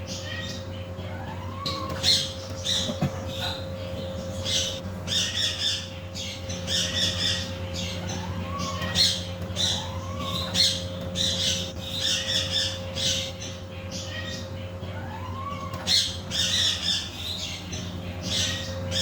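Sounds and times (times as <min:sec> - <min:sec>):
steady low hum: 0:00.0 - 0:19.0
parrot squawking: 0:00.2 - 0:19.0.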